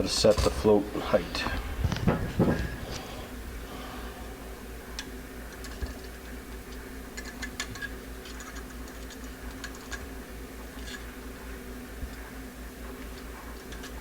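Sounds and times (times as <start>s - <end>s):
steady low hum: 0.0s - 14.0s
small metal parts clicking: 7.2s - 10.0s.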